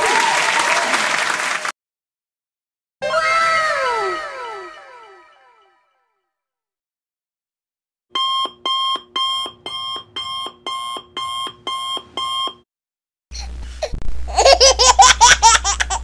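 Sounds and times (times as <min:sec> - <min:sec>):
electronic alarm beeps: 0:08.1 - 0:12.6
baby giggling: 0:13.8 - 0:16.0.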